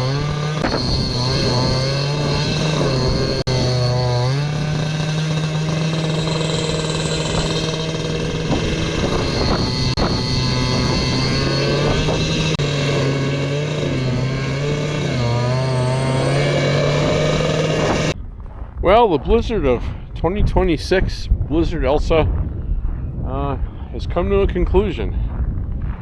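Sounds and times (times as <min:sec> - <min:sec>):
snowblower engine running: 0:00.0 - 0:18.2.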